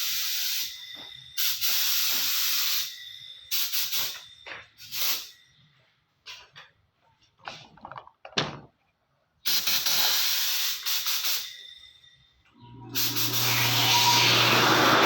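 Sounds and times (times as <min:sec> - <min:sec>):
paint spray gun hissing: 0:00.0 - 0:00.8, 0:01.4 - 0:04.2, 0:04.8 - 0:05.3, 0:09.5 - 0:11.6, 0:13.0 - 0:13.8.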